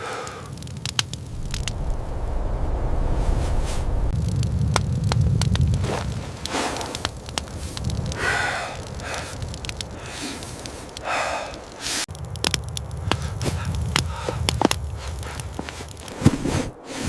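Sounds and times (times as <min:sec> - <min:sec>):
person breathing heavily: 0:00.0 - 0:00.6, 0:08.1 - 0:12.1, 0:13.2 - 0:15.9
low rumble: 0:01.0 - 0:10.1
sharp clicks and crunches: 0:04.2 - 0:16.8.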